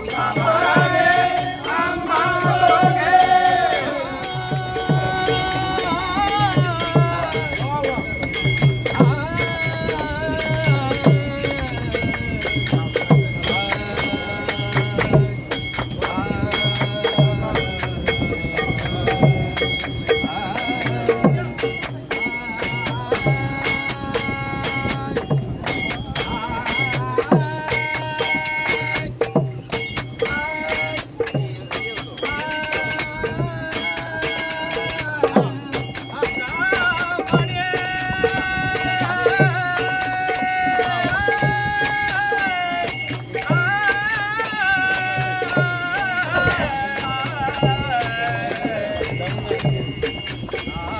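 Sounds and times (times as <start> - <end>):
group singing together: 0.0 - 50.9
jingling percussion: 0.0 - 50.9.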